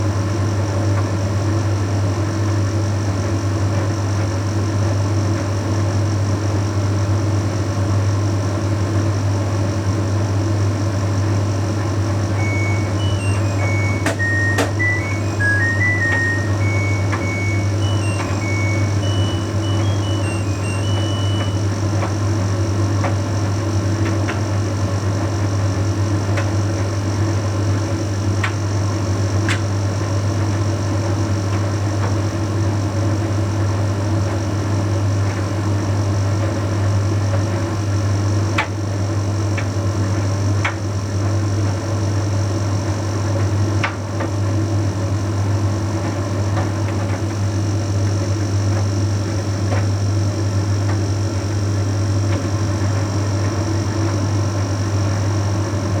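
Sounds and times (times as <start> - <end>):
tumble dryer hum and whine: 12.1 - 25.4
dryer drum turning: 12.4 - 22.2.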